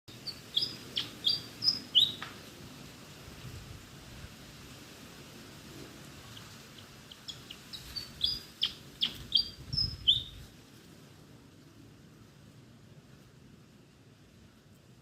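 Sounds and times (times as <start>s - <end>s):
bird singing squeaky notes: 0.1s - 2.2s, 7.3s - 10.4s
wind rumbling on microphone: 3.2s - 11.0s.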